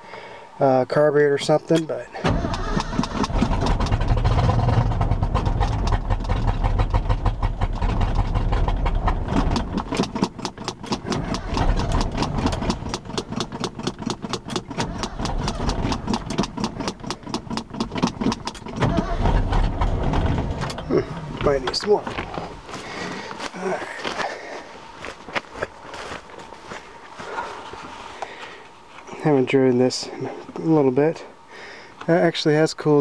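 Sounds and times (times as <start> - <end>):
truck engine cranking and firing: 1.4 - 24.6.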